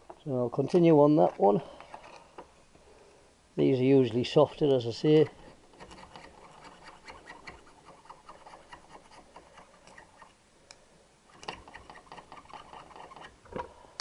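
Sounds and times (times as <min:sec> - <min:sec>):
scraping carbon off metal: 0:05.3 - 0:10.4, 0:11.3 - 0:13.4.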